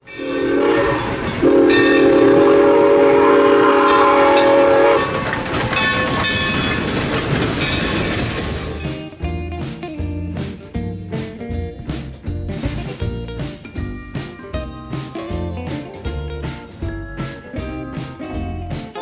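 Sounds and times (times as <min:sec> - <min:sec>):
locomotive chime whistle: 0:00.0 - 0:06.8
train running noise: 0:00.0 - 0:11.5
rail clatter: 0:00.0 - 0:19.0.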